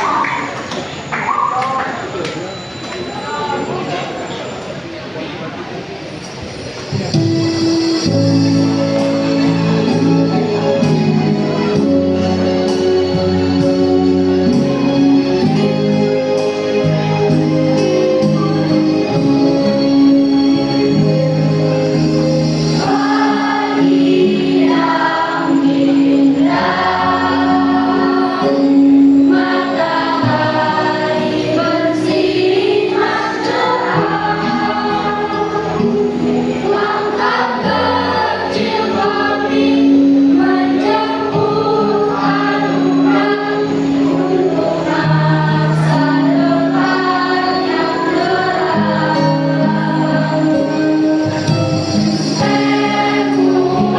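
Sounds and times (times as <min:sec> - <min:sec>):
instrumental accompaniment: 0:06.5 - 0:53.9
choir singing in parts: 0:07.1 - 0:53.9.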